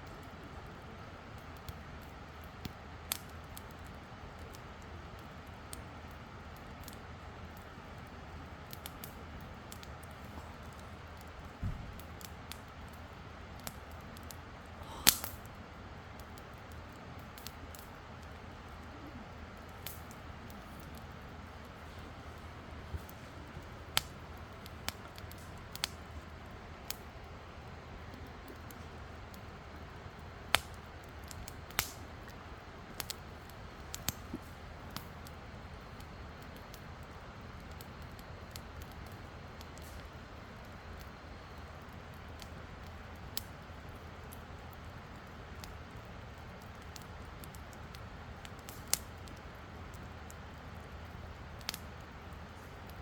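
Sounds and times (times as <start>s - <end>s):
campfire pops and snaps: 0.0s - 53.0s.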